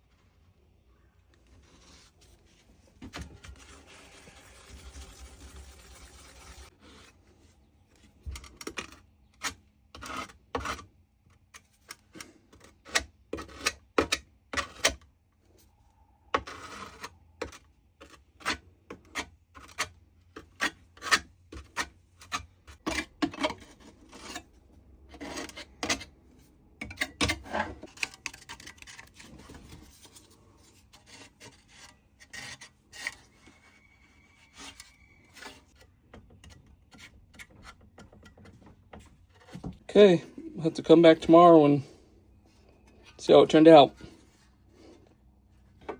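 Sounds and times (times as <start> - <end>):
spreader scraping putty: 3.2 - 7.2.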